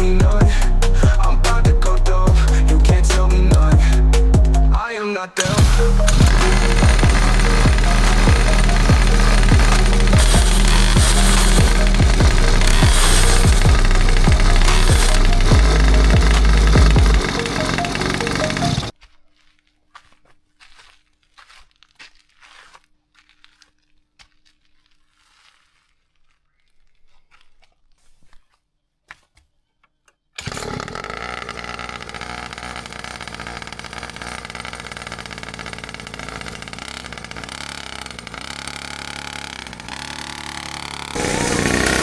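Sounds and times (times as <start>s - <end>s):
small engine running: 5.4s - 18.9s, 30.4s - 42.0s.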